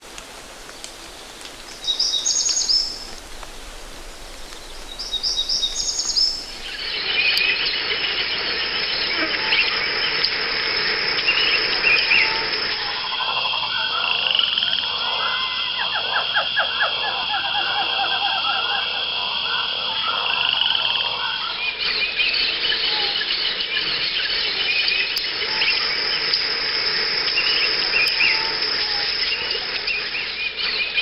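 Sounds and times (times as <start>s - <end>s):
hiss: 0.0s - 13.2s
pulsed trills and croaks: 1.6s - 31.0s
high bird chirps: 1.8s - 3.2s, 4.5s - 10.3s
dense chorus of animal calls: 4.4s - 31.0s.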